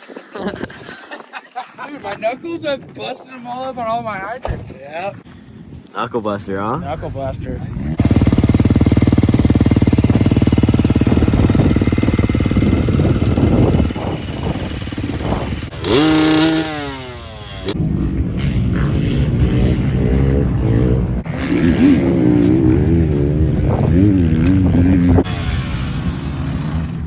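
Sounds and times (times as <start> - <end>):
dirt bike engine running hard: 7.8 - 27.0.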